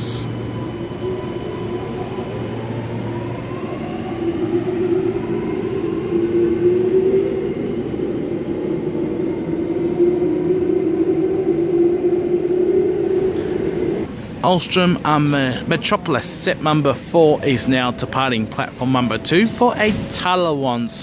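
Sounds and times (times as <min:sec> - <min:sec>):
metro train motor whine: 0:00.0 - 0:14.4.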